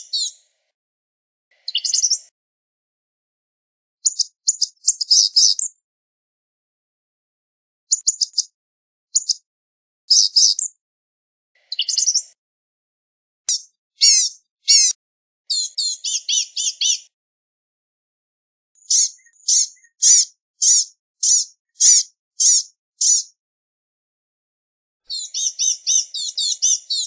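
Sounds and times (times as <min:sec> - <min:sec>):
bird singing high thin phrases: 0:00.0 - 0:00.4, 0:01.6 - 0:02.3, 0:04.0 - 0:05.8, 0:07.9 - 0:08.5, 0:09.1 - 0:09.4, 0:10.1 - 0:10.8, 0:11.6 - 0:12.4, 0:13.5 - 0:17.2, 0:18.8 - 0:23.4, 0:25.1 - 0:27.0.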